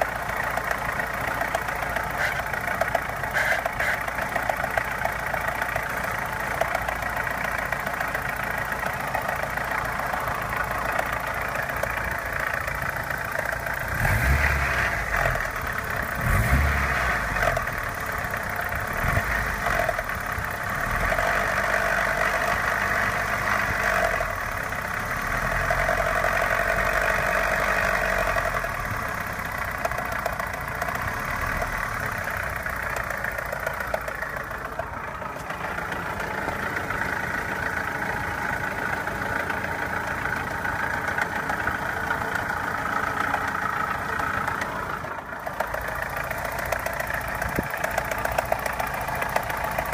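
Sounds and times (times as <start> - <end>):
car engine idling: 0.0 - 49.9
diesel-like engine clatter: 0.0 - 49.9
light engine tapping: 0.4 - 13.8, 28.7 - 38.0, 39.3 - 49.9.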